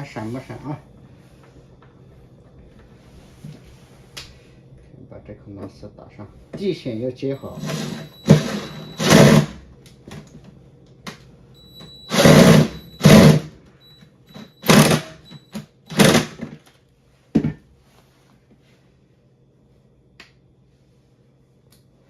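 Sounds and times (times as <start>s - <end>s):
cordless drill driving a screw: 7.4s - 9.6s, 11.8s - 13.5s, 14.3s - 16.4s.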